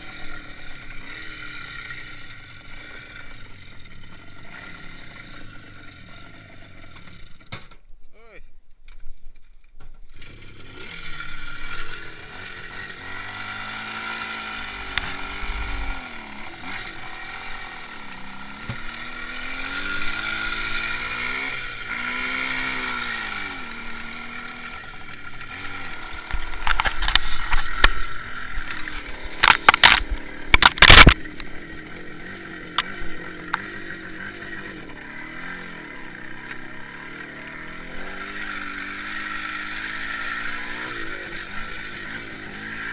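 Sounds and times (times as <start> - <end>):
two-stroke motorcycle engine revving: 0.0 - 7.5, 10.1 - 42.9
mechanical rattle: 26.0 - 31.4.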